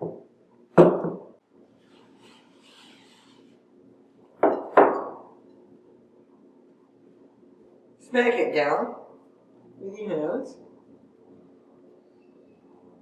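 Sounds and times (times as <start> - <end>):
faint rubbing: 1.7 - 3.6.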